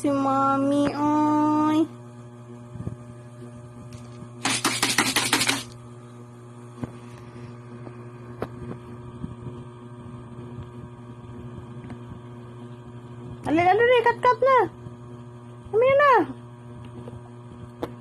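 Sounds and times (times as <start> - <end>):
steady electrical hum: 0.0 - 18.0
cats eating clicks: 4.5 - 5.7.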